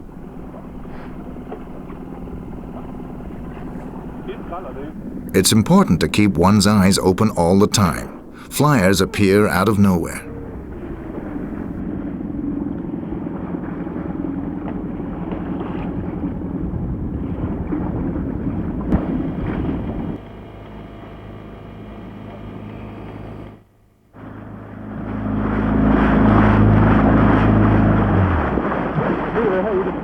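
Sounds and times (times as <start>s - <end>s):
motorboat engine running: 0.0s - 11.8s, 24.2s - 30.0s.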